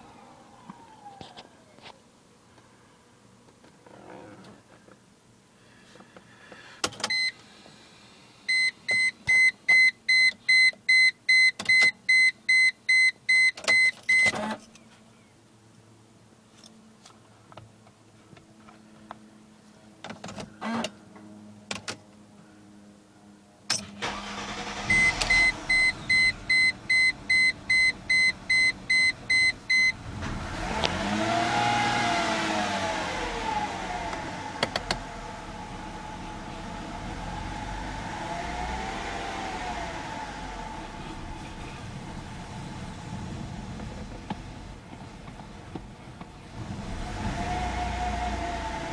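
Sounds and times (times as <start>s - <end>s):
car warning chime beeping: 8.5s - 14.3s, 24.0s - 30.1s
car engine starting and revving: 23.8s - 48.9s.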